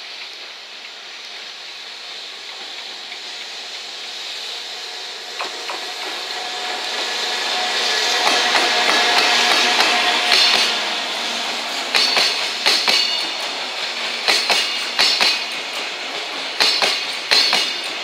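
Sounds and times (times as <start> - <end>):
locomotive and wheels hissing: 0.0 - 18.0
steady tone: 3.6 - 15.7
wheels clicking over rail joints: 11.9 - 18.0.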